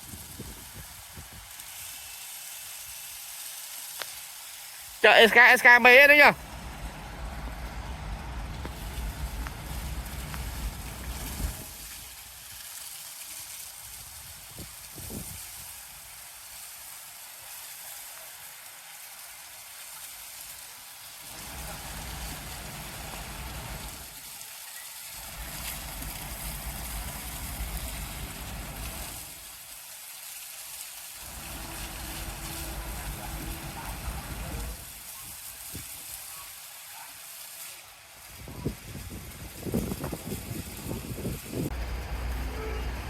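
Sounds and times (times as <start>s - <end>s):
water spray hissing: 0.0s - 43.0s
truck engine rumbling: 6.4s - 12.0s, 21.3s - 24.1s, 25.2s - 29.5s, 31.2s - 35.0s, 40.7s - 43.0s.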